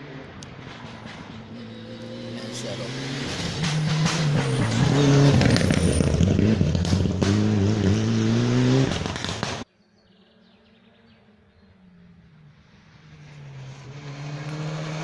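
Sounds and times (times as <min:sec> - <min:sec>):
rally car engine at full throttle: 0:00.0 - 0:09.7, 0:11.0 - 0:15.0
sharp cracks: 0:08.9 - 0:09.6.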